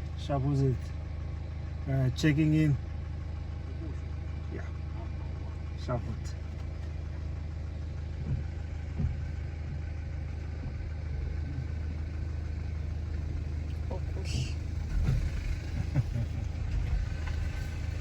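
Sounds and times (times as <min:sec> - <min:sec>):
car engine rumbling: 0:00.0 - 0:18.0
engine knocks: 0:04.8 - 0:18.0.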